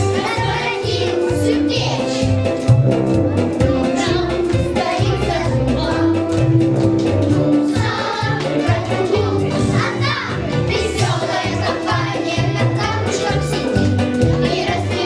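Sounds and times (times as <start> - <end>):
instrumental accompaniment: 0.0 - 15.0
rhythmic bass line: 0.0 - 15.0
choir singing: 0.1 - 1.0, 4.0 - 6.2, 7.4 - 13.8, 14.4 - 15.0.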